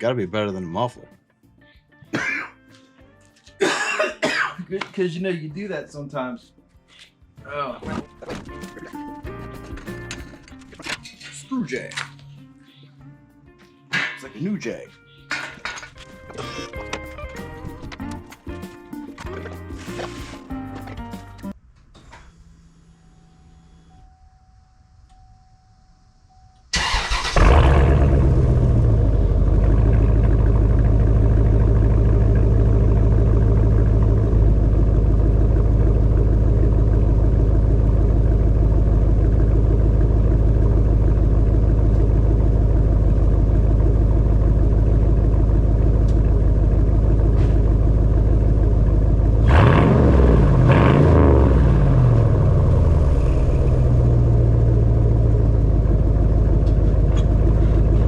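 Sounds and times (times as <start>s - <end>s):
engine starting and idling: 26.7s - 58.0s.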